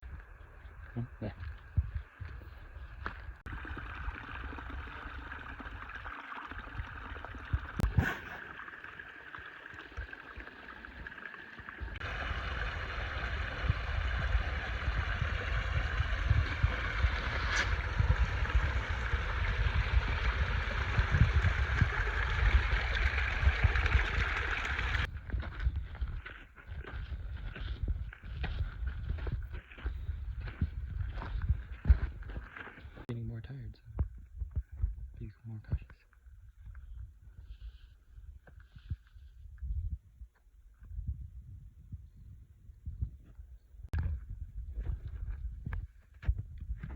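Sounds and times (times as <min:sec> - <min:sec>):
stream rushing and gurgling: 0:03.4 - 0:25.1
low rumble: 0:11.9 - 0:25.9.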